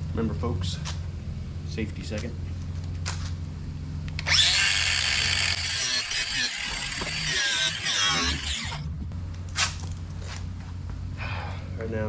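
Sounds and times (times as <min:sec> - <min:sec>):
power tool grinding metal: 0:04.2 - 0:08.9.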